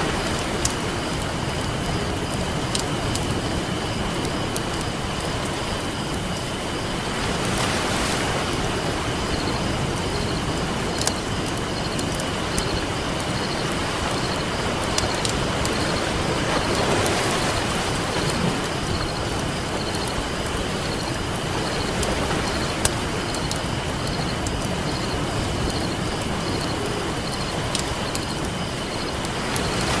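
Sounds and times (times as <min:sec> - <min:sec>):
campfire crackling and popping: 0:00.0 - 0:29.7
ocean surf washing: 0:00.0 - 0:30.0.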